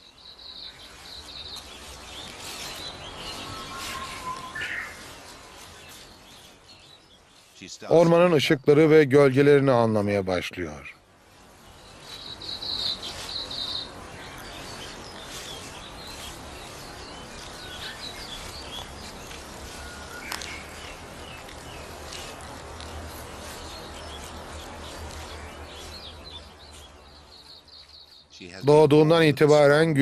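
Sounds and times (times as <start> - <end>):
small birds chirping: 0.0 - 30.0
steady background hiss: 0.0 - 30.0.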